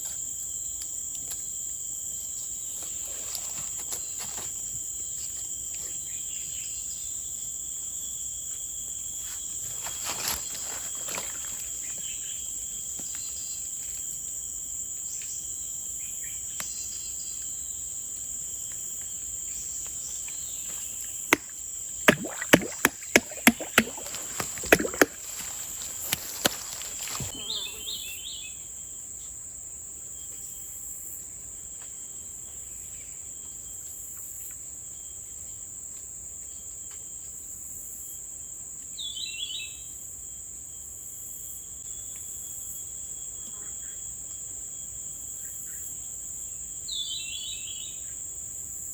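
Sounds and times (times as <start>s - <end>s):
insects droning: 0.0s - 48.9s
sharp knocks: 22.1s - 25.4s.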